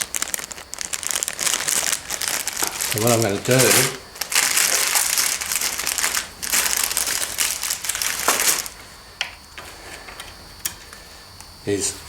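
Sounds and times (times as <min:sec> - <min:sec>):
packaging crinkling: 0:00.0 - 0:08.9.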